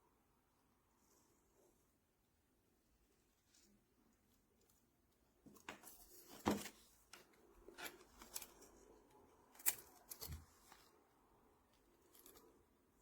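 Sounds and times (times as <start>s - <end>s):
parts rustling by hand: 3.1s - 13.0s.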